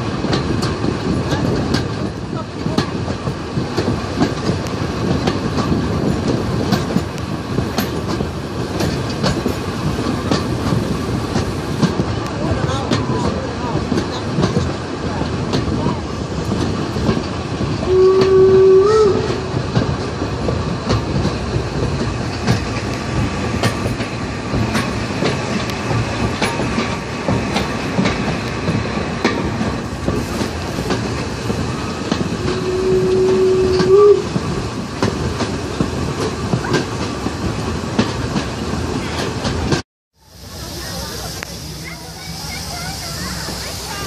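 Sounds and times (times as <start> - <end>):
train rumble: 0.0 - 44.0
train wheels clicking over rail joints: 0.0 - 44.0
locomotive signal tone: 17.8 - 19.5, 32.4 - 34.3.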